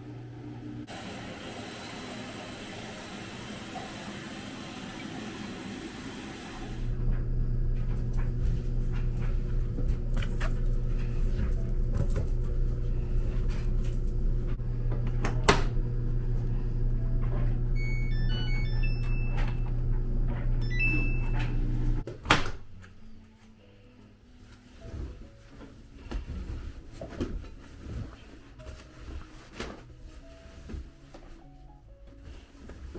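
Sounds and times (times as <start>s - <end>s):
laundry machine humming: 0.0s - 23.4s
electronic beeping tune: 17.8s - 19.6s, 20.6s - 21.5s.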